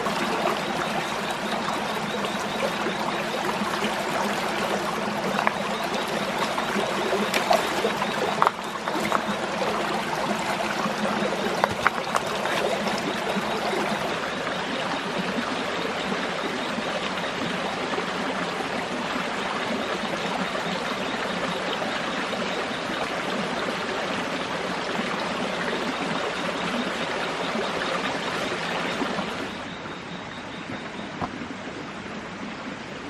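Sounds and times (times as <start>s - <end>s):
forest stream rushing: 0.0s - 29.8s.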